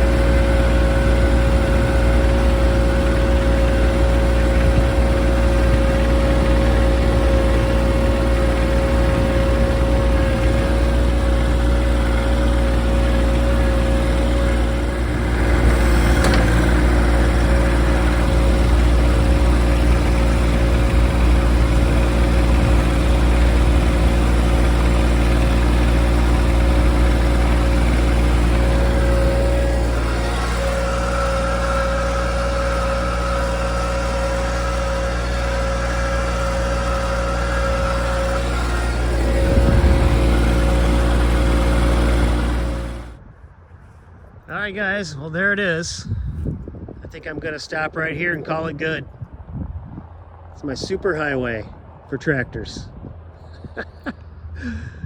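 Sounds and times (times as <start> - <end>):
steady whine: 0.0 - 46.1
tractor diesel engine running: 0.0 - 55.0.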